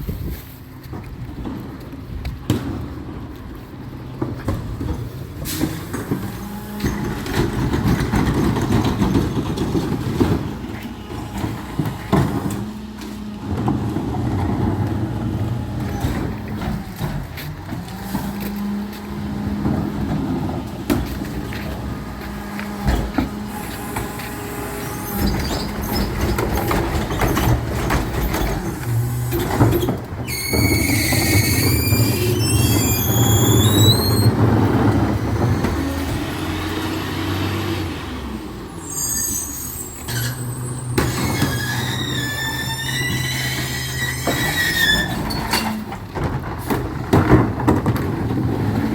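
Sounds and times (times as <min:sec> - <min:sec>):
truck engine running: 0:00.0 - 0:44.7
clanks and knocks: 0:04.2 - 0:24.4, 0:25.1 - 0:36.0, 0:41.0 - 0:48.9.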